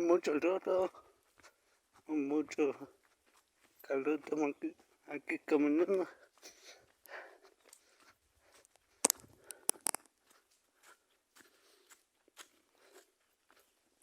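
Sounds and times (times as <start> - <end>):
footsteps on muddy ground: 0.0 - 14.0
sharp clicks: 9.0 - 10.1.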